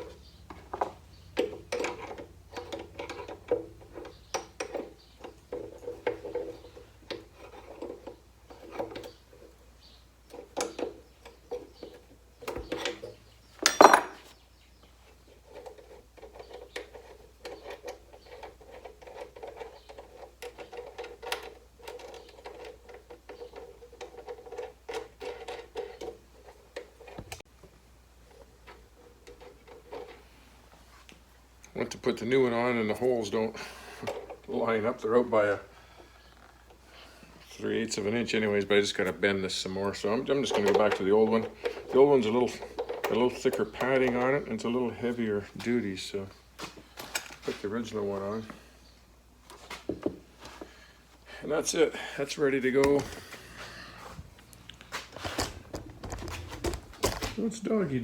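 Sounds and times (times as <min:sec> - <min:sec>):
metal parts clinking and rattling: 0:12.7 - 0:14.3.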